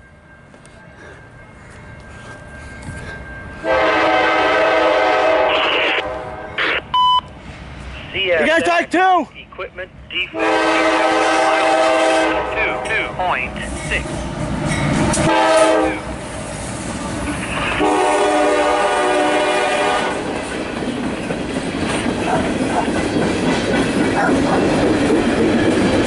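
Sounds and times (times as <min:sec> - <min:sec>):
freight train rumble and clatter: 0:00.0 - 0:26.0
locomotive horn blasts: 0:03.6 - 0:06.7, 0:10.3 - 0:13.1, 0:15.2 - 0:16.0, 0:17.8 - 0:20.3.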